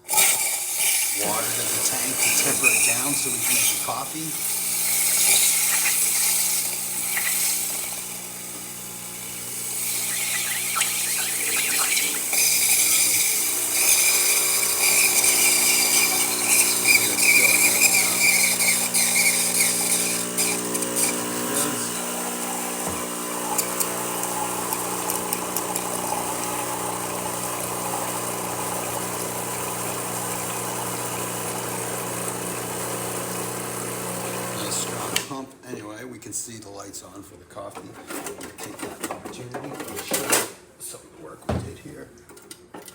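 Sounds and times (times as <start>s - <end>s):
water and steam hissing: 0.0s - 27.5s, 33.9s - 35.2s
espresso machine pump humming: 0.0s - 35.3s.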